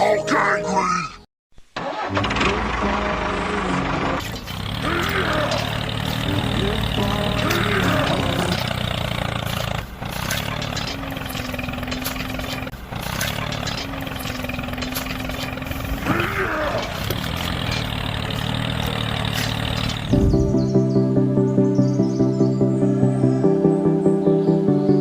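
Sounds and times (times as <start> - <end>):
tractor engine running: 1.8 - 21.2.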